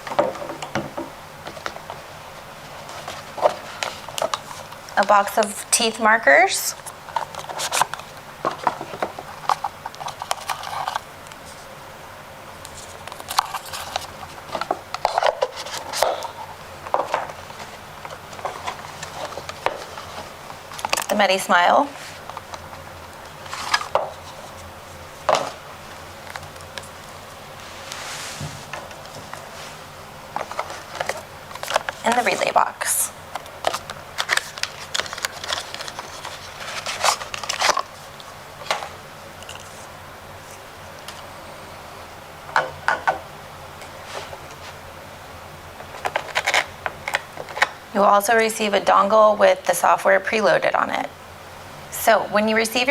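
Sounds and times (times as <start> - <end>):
packaging rustling: 1.4 - 5.2, 6.8 - 11.7, 12.7 - 21.2, 21.8 - 41.3, 45.8 - 47.8
packaging clicks and knocks: 33.3 - 37.9.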